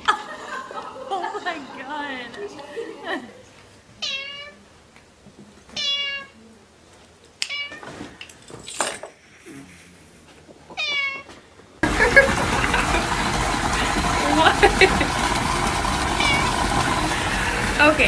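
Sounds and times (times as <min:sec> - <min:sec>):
cat meowing: 0:04.0 - 0:04.6, 0:05.8 - 0:06.4, 0:07.4 - 0:07.8, 0:10.8 - 0:11.3, 0:16.2 - 0:16.5
loud steady rushing noise: 0:11.8 - 0:18.0.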